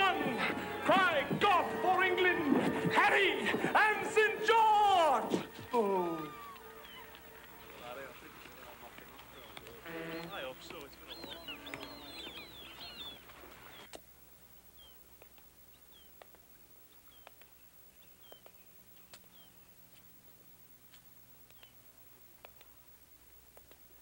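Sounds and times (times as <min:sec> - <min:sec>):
birds chirping: 0:00.0 - 0:20.5, 0:21.4 - 0:22.0
low hiss: 0:00.0 - 0:24.0
soft ticks: 0:20.9 - 0:21.8, 0:22.4 - 0:23.9.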